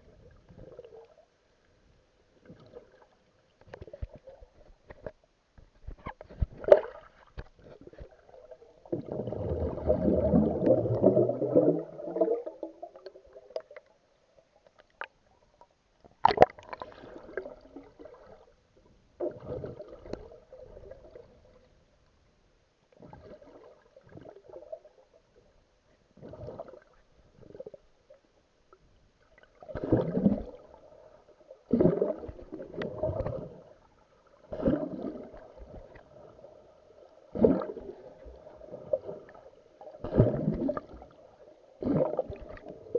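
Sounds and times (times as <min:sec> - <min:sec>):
deep gush of water: 0:08.4 - 0:13.4, 0:37.3 - 0:41.2, 0:41.8 - 0:42.9.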